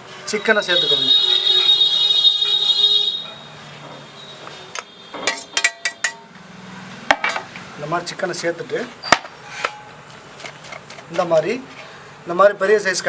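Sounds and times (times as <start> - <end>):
shrill high-pitched whistle: 0.2 - 3.6, 4.2 - 5.2
utensils clinking against bowl: 4.7 - 6.3, 8.8 - 11.9.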